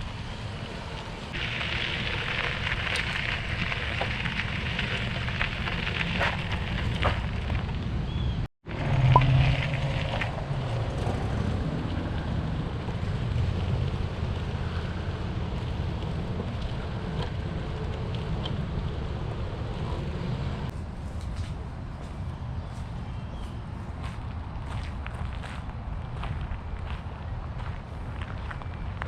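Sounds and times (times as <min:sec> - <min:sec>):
outdoor background noise: 0:00.0 - 0:29.0
wind rumble on microphone: 0:00.0 - 0:29.0.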